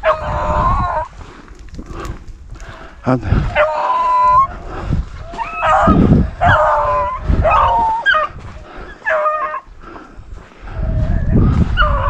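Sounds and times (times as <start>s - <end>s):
dogs baying: 0.0s - 1.1s, 3.4s - 4.6s, 5.3s - 9.8s
low rumbles: 0.0s - 9.0s.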